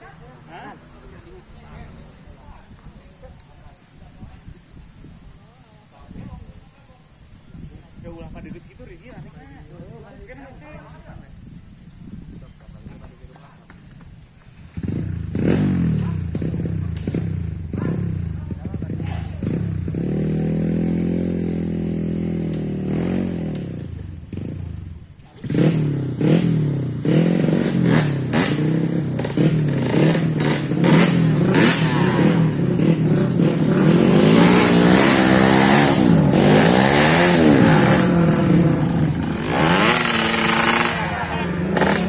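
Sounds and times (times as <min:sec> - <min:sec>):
motorcycle engine revving: 0:13.8 - 0:42.0.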